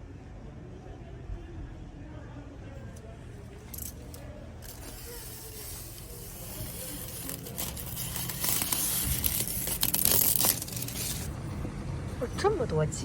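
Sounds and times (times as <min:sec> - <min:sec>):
tint film peeled off glass: 0:03.8 - 0:11.4.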